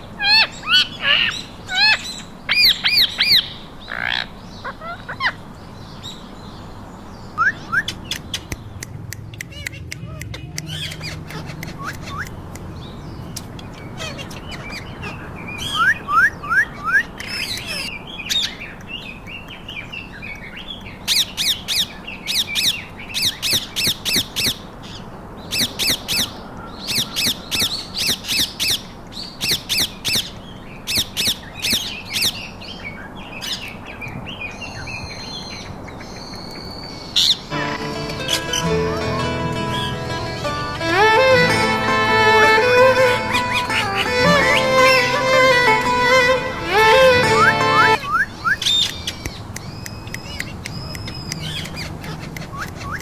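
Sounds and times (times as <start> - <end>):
rising chirps: 37.5 - 48.2.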